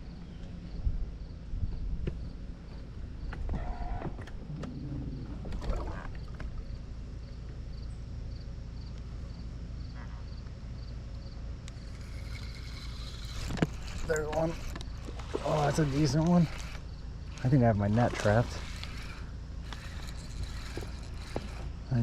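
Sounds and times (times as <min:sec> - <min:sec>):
wind and water rumble: 0:00.8 - 0:07.4.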